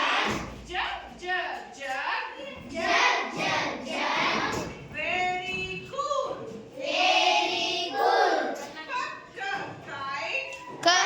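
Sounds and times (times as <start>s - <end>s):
children singing together: 2.8s - 4.7s, 6.8s - 8.6s.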